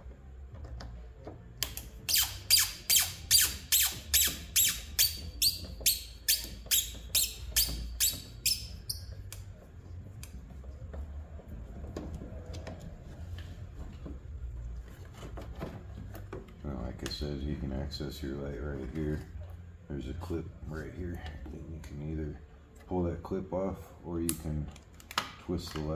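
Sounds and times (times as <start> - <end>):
screw squeaking: 1.6 - 9.6.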